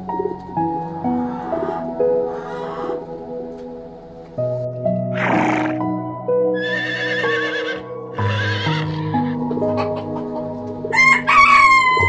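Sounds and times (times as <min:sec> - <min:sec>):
background music: 0:00.0 - 0:12.0
horse whinnying: 0:05.2 - 0:05.8, 0:06.6 - 0:08.9
rooster crowing: 0:10.9 - 0:12.0.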